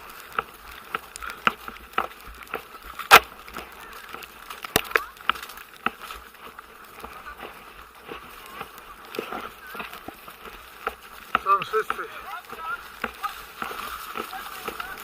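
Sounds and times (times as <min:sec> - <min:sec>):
horse hooves walking: 0:00.0 - 0:15.0.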